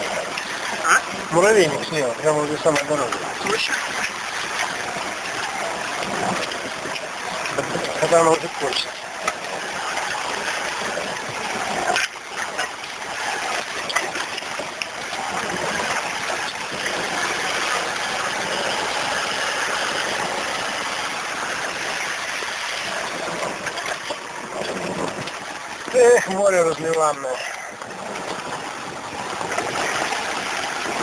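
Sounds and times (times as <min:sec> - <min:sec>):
vehicle wading through water: 0:00.0 - 0:31.0
water rushing and splashing: 0:00.0 - 0:31.0.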